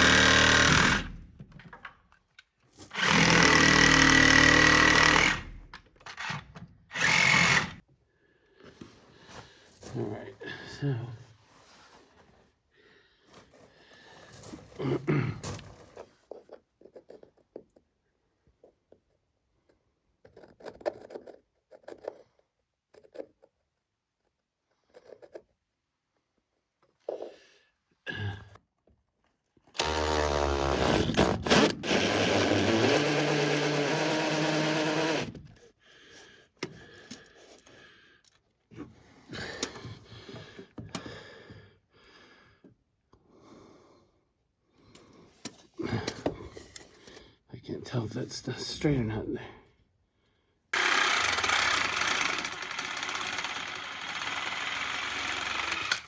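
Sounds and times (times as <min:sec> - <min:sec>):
power drill running: 0:00.0 - 0:01.2, 0:02.9 - 0:05.5, 0:06.1 - 0:07.8, 0:29.8 - 0:35.4, 0:50.8 - 0:56.0.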